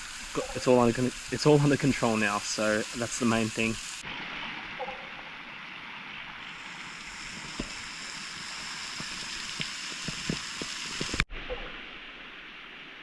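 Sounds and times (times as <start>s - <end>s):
gas burner hissing: 0.0s - 4.0s, 6.4s - 11.3s.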